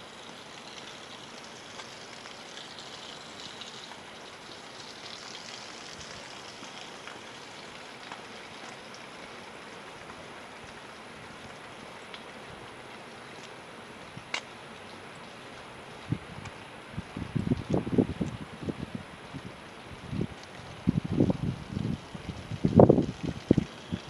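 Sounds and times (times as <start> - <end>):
water rushing: 0.0 - 24.0.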